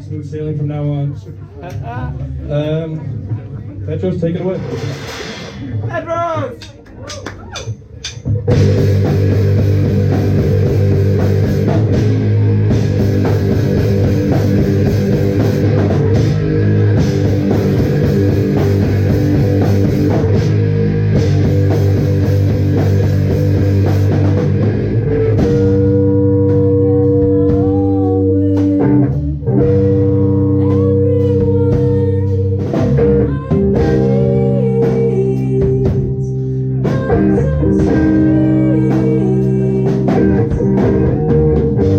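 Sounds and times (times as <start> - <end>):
live rock band playing: 4.4 - 6.5, 7.4 - 41.9
guitar chords ringing: 8.5 - 32.2.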